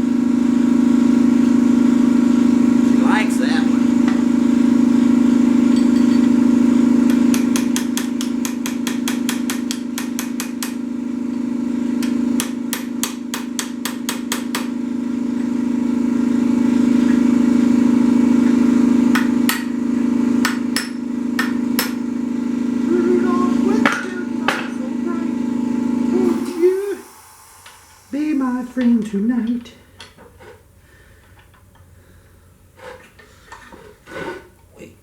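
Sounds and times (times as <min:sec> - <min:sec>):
steady low hum: 0:00.0 - 0:35.0
hammer striking steel: 0:05.7 - 0:10.9, 0:12.0 - 0:14.8, 0:19.1 - 0:19.8, 0:20.4 - 0:22.0, 0:23.8 - 0:24.8, 0:26.4 - 0:30.2.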